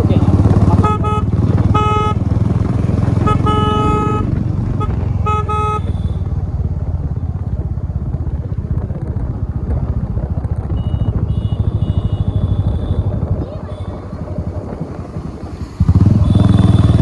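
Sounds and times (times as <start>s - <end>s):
motorcycle engine running: 0.0s - 17.0s
vehicle horn: 0.7s - 2.2s, 3.2s - 6.3s, 10.8s - 14.0s, 16.0s - 17.0s.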